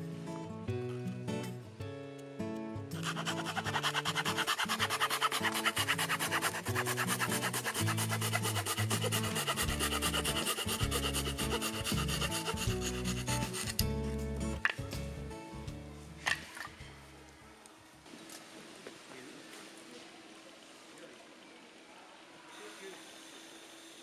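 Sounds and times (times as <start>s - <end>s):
background music: 0.0s - 17.6s
hand saw cutting wood: 3.0s - 14.0s.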